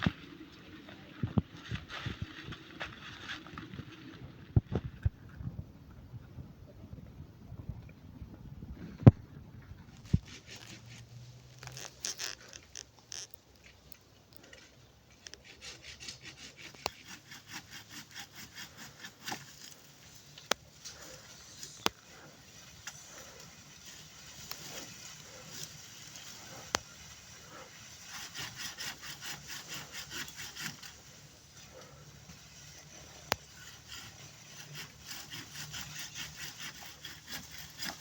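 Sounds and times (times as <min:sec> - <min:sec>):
rhythmic rasping strokes: 0:15.2 - 0:38.0.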